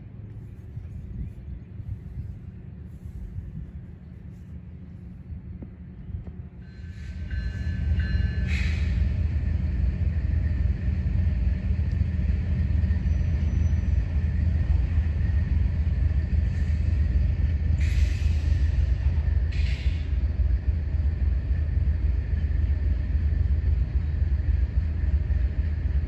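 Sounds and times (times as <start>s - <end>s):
train rumbling past: 0.0s - 26.0s.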